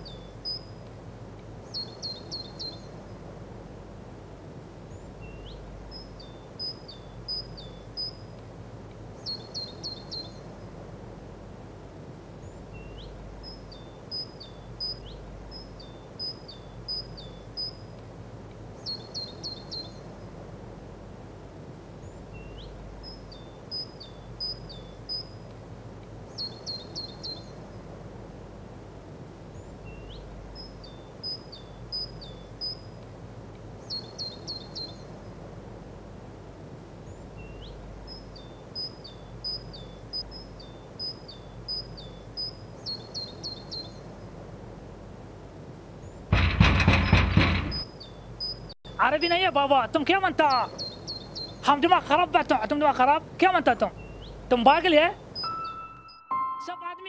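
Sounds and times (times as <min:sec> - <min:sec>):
songbird singing: 0:00.0 - 0:03.5, 0:04.6 - 0:11.0, 0:12.2 - 0:21.1, 0:21.7 - 0:28.5, 0:29.3 - 0:35.6, 0:36.8 - 0:45.1, 0:45.8 - 0:57.0.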